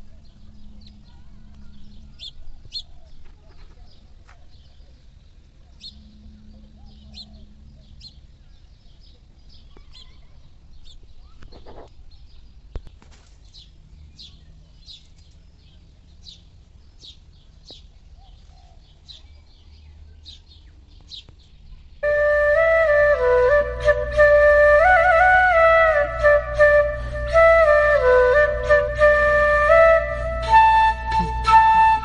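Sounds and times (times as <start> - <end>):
bird chirping: 0.0 - 22.2
flute music: 22.0 - 32.0.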